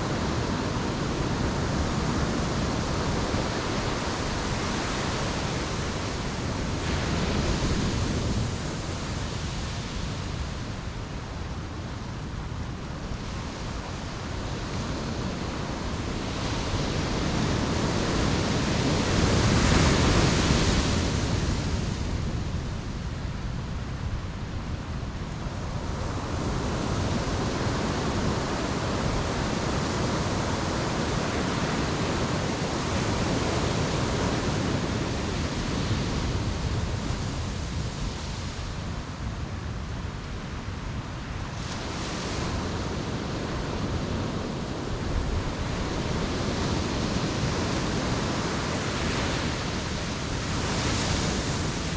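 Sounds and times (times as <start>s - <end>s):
ocean surf breaking on beach: 0.0s - 51.9s.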